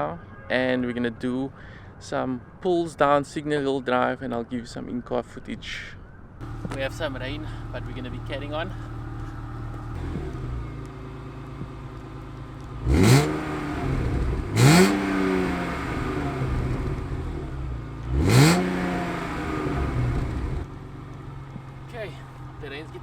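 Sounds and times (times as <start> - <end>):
car engine idling and revving: 6.4 - 23.0.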